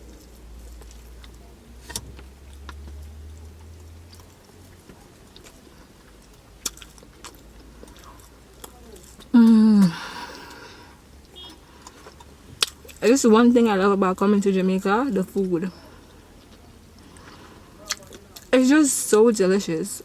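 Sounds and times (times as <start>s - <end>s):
chewing and biting food: 0.0s - 9.3s, 10.4s - 13.0s, 15.8s - 18.6s
person humming mm: 9.3s - 10.6s.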